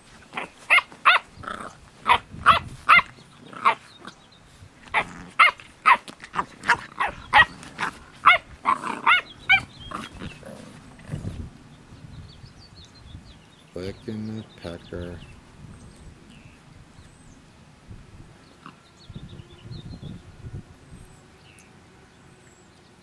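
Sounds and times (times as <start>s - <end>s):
puppies barking and yipping: 0.0s - 11.4s
puppies growling: 0.3s - 11.6s, 18.5s - 19.0s.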